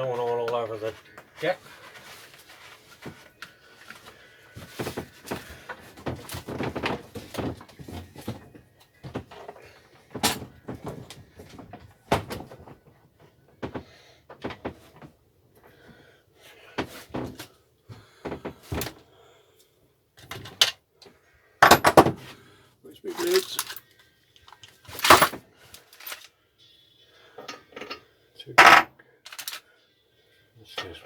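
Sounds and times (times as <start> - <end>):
hard parts knocking and rattling: 21.6 - 22.3, 24.6 - 26.3, 28.6 - 29.6.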